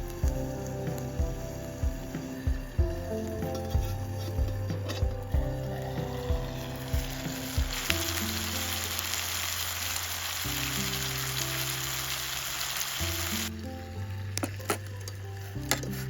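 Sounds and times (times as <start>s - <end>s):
food sizzling in a frying pan: 0.0s - 16.0s
soft background music: 0.0s - 16.0s.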